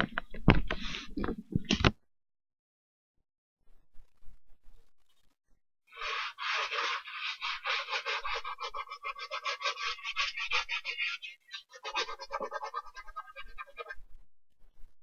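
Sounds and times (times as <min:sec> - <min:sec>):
brush scrubbing a sneaker: 0:06.0 - 0:10.7.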